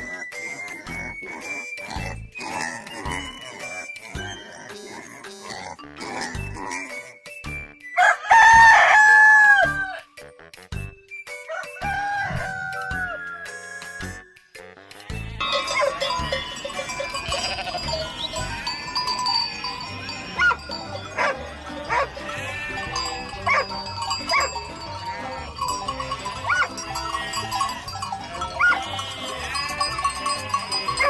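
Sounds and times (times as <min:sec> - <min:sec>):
background music with beat: 0:08.5 - 0:19.5
farm animals bleating: 0:14.9 - 0:31.0.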